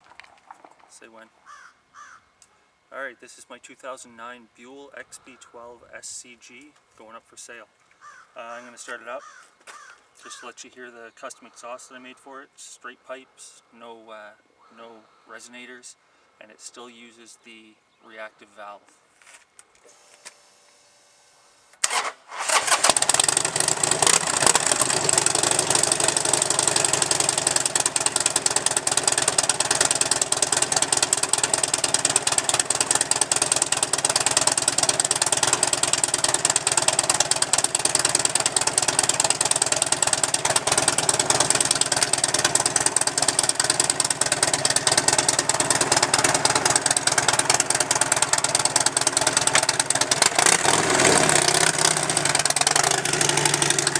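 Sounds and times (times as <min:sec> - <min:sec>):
motorcycle starter cranking: 0:21.7 - 0:53.9
motorcycle engine idling loudly: 0:22.4 - 0:53.9.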